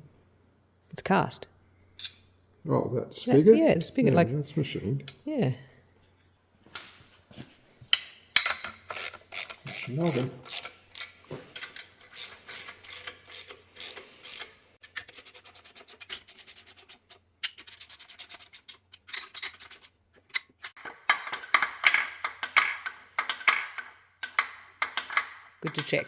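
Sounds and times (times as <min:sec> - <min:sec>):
ratchet wrench clicking: 0:08.4 - 0:11.2, 0:12.0 - 0:18.7.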